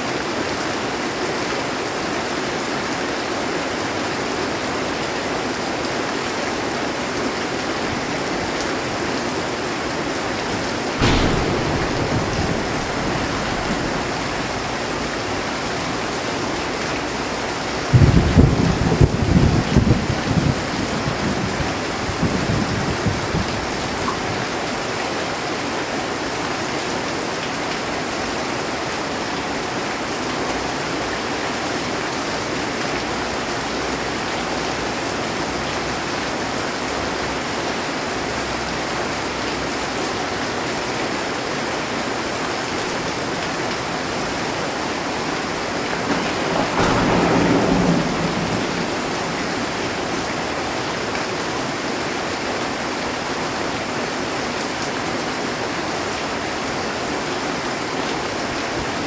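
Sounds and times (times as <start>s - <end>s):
heavy rain on a metal roof: 0.0s - 59.0s
thunder clap rumbling: 7.9s - 24.5s, 42.6s - 52.5s.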